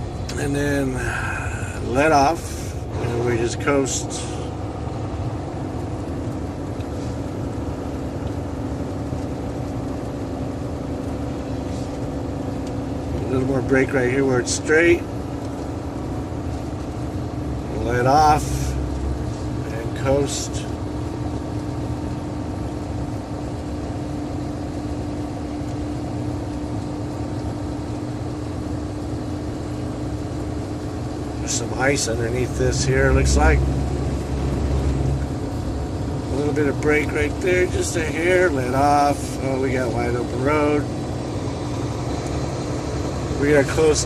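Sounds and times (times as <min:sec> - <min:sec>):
road noise: 0:00.0 - 0:44.0
truck engine drone: 0:00.0 - 0:44.0
steady hum: 0:29.0 - 0:44.0.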